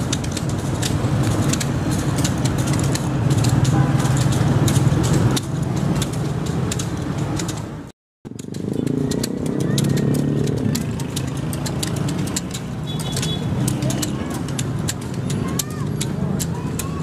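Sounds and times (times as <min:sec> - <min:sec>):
motorcycle and car engines: 0:00.0 - 0:17.0
sticks striking backs: 0:00.0 - 0:17.0.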